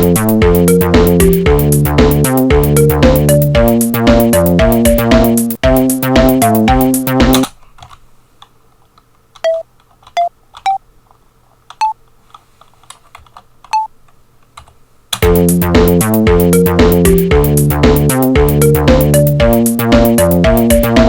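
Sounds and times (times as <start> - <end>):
tracker music with drum beat: 0.0 - 7.5, 15.2 - 21.0
keyboard keys clicking: 7.2 - 8.0.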